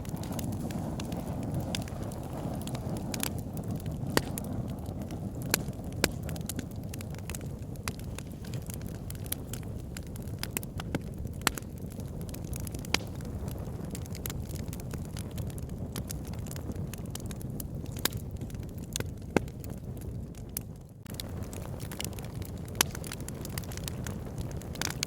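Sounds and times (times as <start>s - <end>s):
fire crackling: 0.0s - 25.0s
low rumble of flames: 0.0s - 25.0s
sharp pops from logs: 2.6s - 4.4s, 12.6s - 13.2s, 21.1s - 23.9s.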